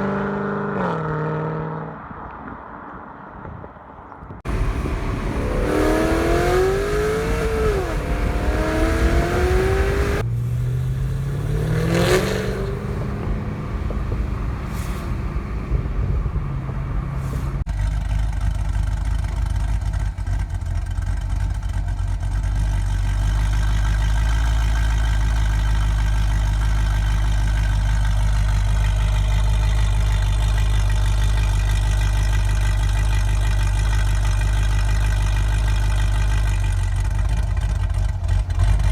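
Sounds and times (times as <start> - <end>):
deep exhaust drone: 4.5 - 32.3
car exhaust revving: 4.5 - 38.9.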